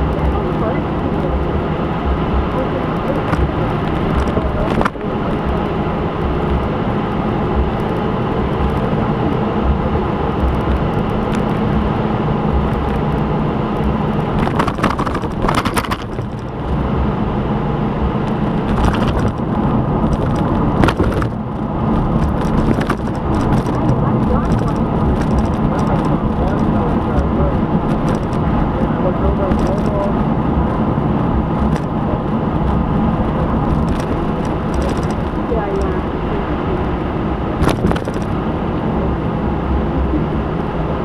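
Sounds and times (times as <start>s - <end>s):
motor vehicle running: 0.0s - 41.0s.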